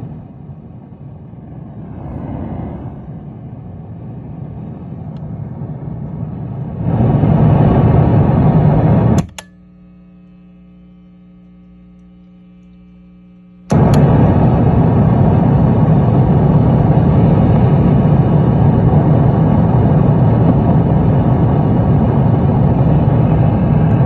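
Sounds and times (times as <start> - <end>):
amplifier hum: 0.0 - 24.0
noise through guitar amplifier: 0.0 - 24.0
sharp click: 9.2 - 9.6.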